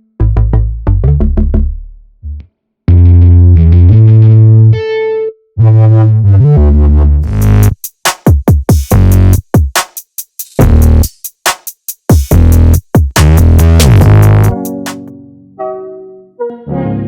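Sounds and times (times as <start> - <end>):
synth chords with heavy bass: 5.6 - 7.8, 10.6 - 11.1, 12.3 - 15.1
drum machine hits: 7.5 - 15.1.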